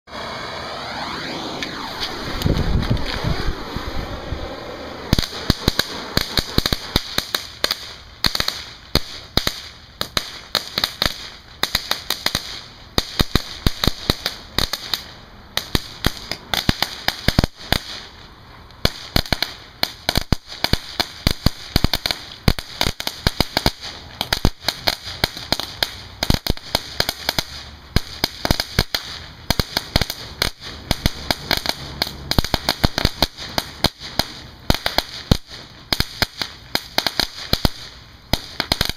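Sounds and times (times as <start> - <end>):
firecracker crackling: 0.1 - 38.9.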